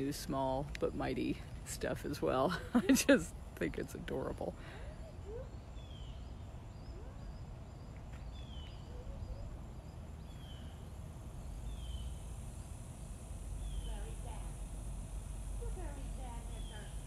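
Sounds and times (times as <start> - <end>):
low outdoor rumble: 0.0 - 17.0
faint high chirps: 4.8 - 11.0.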